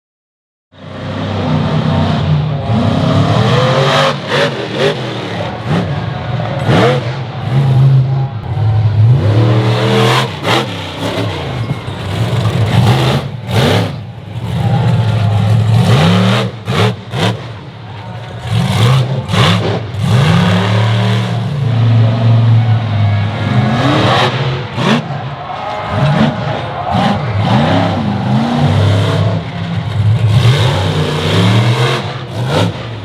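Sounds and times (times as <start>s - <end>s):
monster truck engine revving: 0.8s - 33.0s.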